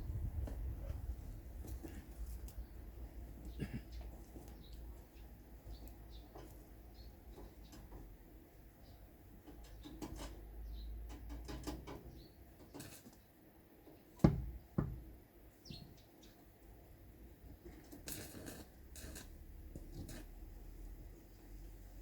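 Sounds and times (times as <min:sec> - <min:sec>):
sharp knocks: 0:14.2 - 0:15.1.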